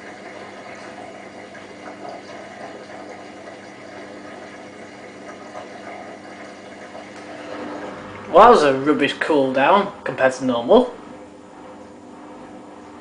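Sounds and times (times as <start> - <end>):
washing machine drain pump humming: 0.0 - 13.0.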